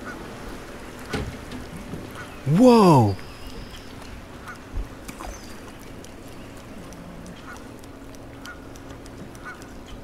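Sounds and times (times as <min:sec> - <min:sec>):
light ticks: 0:03.7 - 0:10.0.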